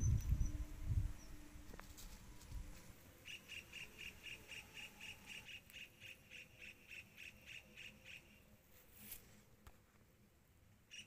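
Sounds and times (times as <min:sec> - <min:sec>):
bird calling faintly: 0:03.2 - 0:08.5.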